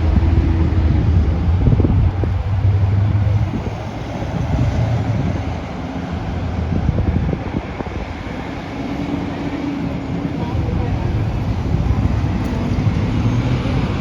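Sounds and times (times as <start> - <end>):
vehicle rumble: 0.0 - 14.0
wind buffeting microphone: 0.0 - 14.0.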